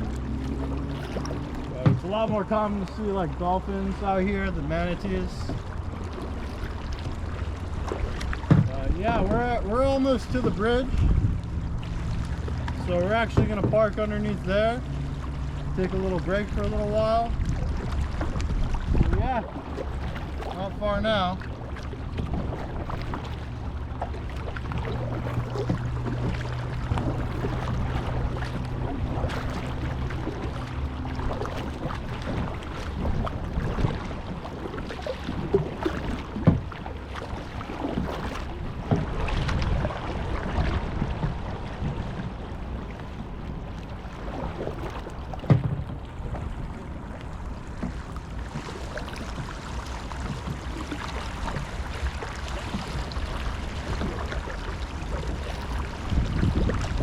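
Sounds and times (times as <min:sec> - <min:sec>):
low hum: 0:00.0 - 0:57.0
paddle splashing in water: 0:00.0 - 0:57.0
wind on microphone: 0:08.0 - 0:13.8, 0:15.7 - 0:23.7, 0:31.2 - 0:57.0
sharp knocks: 0:08.4 - 0:08.8.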